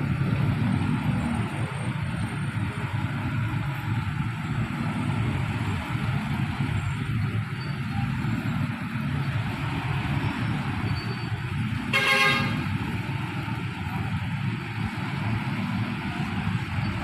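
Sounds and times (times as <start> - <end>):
horn toot: 11.9 - 12.7.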